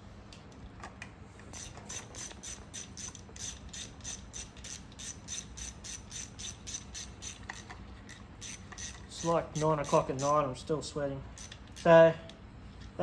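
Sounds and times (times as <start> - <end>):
hand ratchet clicking: 1.5 - 10.4, 11.4 - 11.9.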